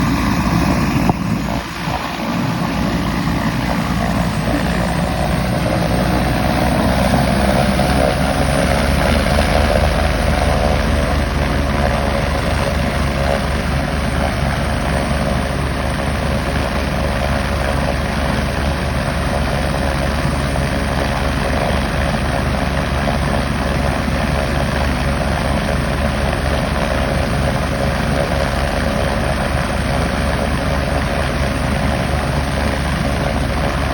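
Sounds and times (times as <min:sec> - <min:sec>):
helicopter drone with high whine: 0:00.0 - 0:33.9.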